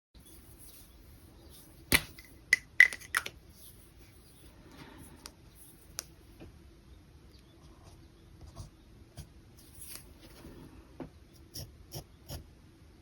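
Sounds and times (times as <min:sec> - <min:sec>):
small hard objects clicking on desk: 0:01.9 - 0:03.4.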